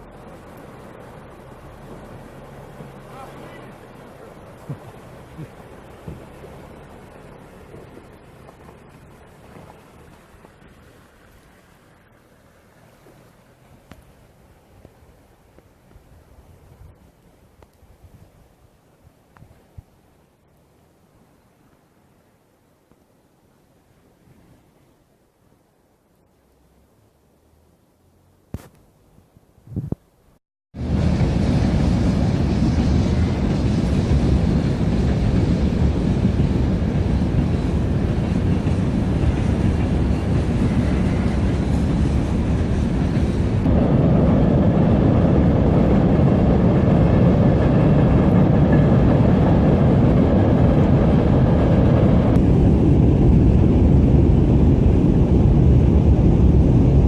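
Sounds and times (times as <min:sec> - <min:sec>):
river rushing: 0:00.0 - 0:19.2, 0:30.8 - 0:57.0.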